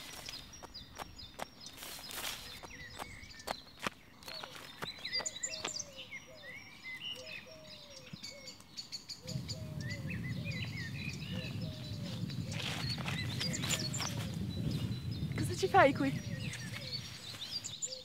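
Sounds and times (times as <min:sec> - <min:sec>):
small birds chirping: 0:00.0 - 0:18.0
low even rushing noise: 0:09.3 - 0:15.4.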